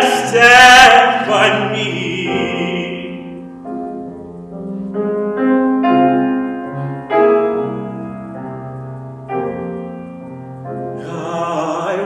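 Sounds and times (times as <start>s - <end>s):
person singing: 0.0s - 3.4s, 11.0s - 12.0s
piano chords: 0.0s - 12.0s.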